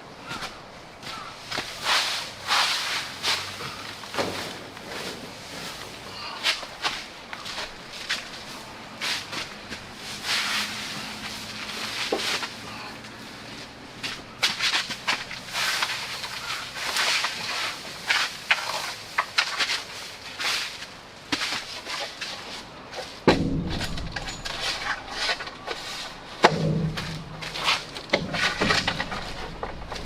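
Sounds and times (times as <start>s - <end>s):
rustling and scraping: 0.0s - 30.0s.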